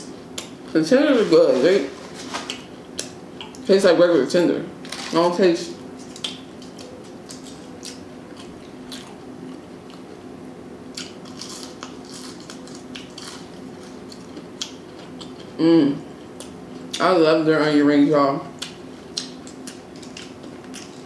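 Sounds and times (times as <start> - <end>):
faint steady hum: 0.0 - 21.0
chewing crispy fried food: 5.9 - 17.1, 18.5 - 21.0.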